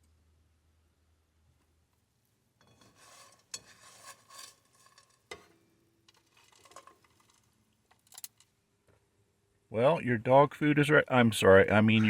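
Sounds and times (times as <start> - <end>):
utensil scraping a frying pan: 2.6 - 7.5.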